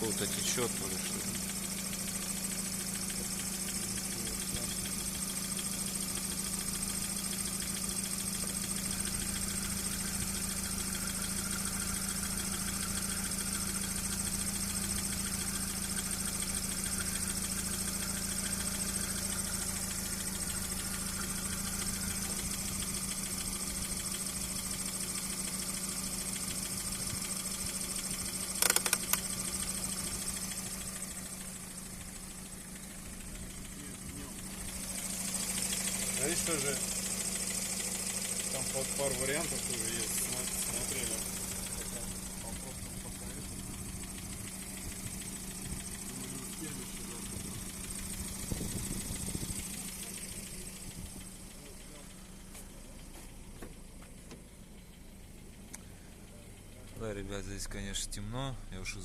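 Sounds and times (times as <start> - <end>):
car engine idling with whine: 0.0 - 59.0
sharp clicks: 28.5 - 29.5.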